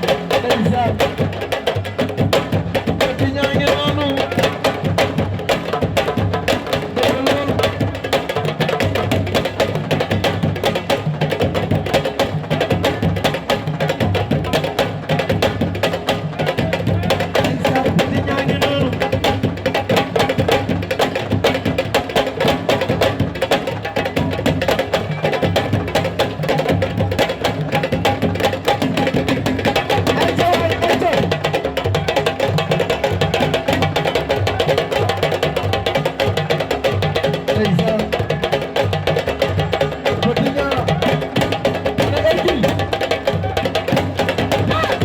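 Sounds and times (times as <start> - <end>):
music with fast dense drumming: 0.0 - 45.0.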